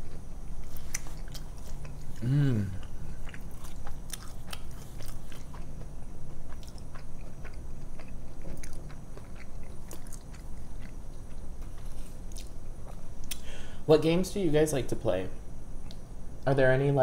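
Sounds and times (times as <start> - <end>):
person chewing food: 0.0 - 13.5
wet mouth clicks: 13.2 - 13.5.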